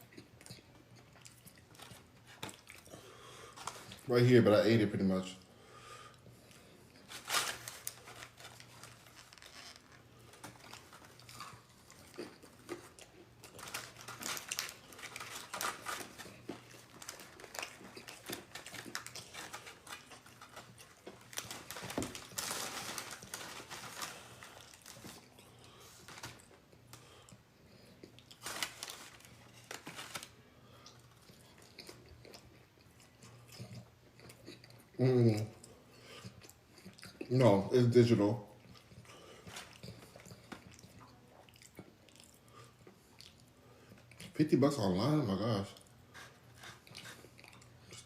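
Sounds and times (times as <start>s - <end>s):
chewing and crunching: 0.0s - 4.1s, 6.1s - 37.6s, 38.2s - 44.5s, 45.4s - 48.0s
paper packaging crinkling: 7.0s - 26.6s, 28.2s - 30.4s.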